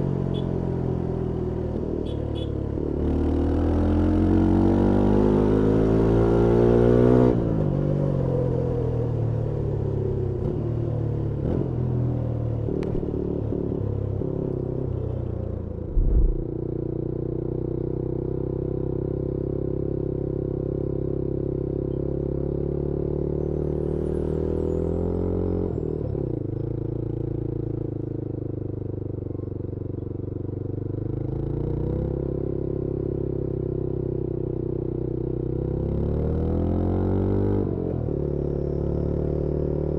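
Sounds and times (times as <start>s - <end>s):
motorcycle engine running: 13.0s - 17.7s
short thump: 15.9s - 16.5s.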